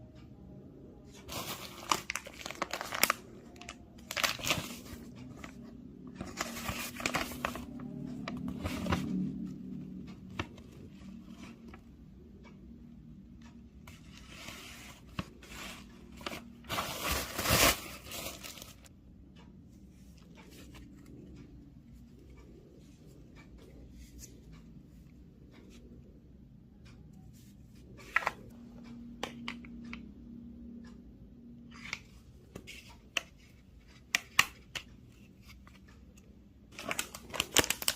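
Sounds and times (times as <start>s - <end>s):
packaging rustling and tearing: 1.3s - 5.0s, 16.7s - 18.8s, 36.8s - 37.9s.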